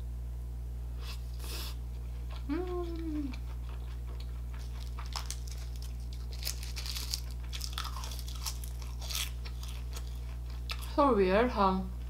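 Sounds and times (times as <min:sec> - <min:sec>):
low electrical hum: 0:00.0 - 0:12.0
crunchy chewing: 0:01.0 - 0:11.0.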